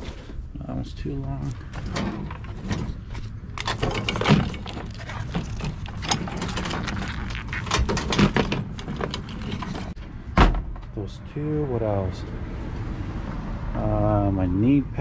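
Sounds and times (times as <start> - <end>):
equipment rustling and knocking: 1.5 - 10.0.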